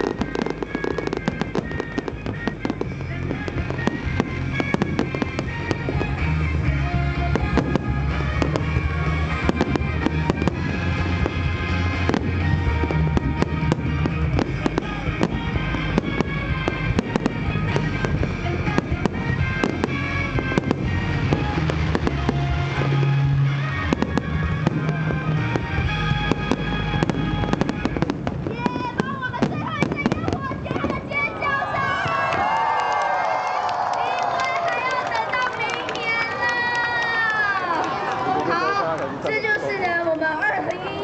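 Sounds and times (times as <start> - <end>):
music with heavy bass: 0.0 - 28.5
fireworks bangs and crackles: 0.0 - 40.9.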